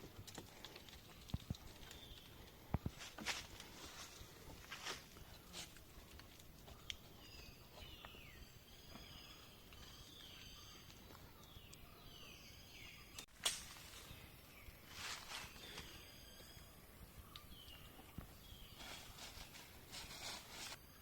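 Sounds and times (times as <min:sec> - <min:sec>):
bird calls with falling notes: 0:06.6 - 0:20.8.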